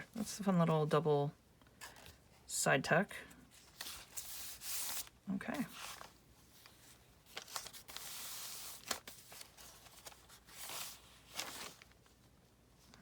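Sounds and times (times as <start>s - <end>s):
paper rustling and sliding: 3.5s - 12.3s.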